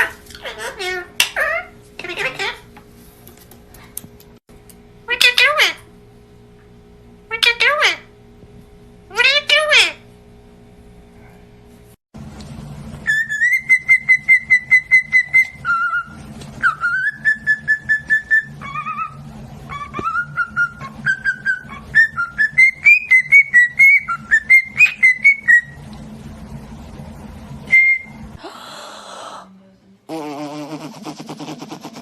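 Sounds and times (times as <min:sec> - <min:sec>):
steady low hum: 0:00.1 - 0:32.0.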